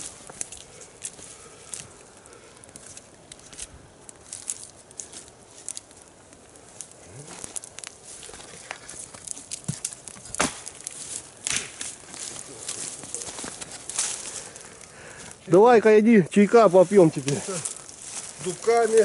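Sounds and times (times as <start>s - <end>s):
campfire sticks crackling and snapping: 0.0s - 19.0s.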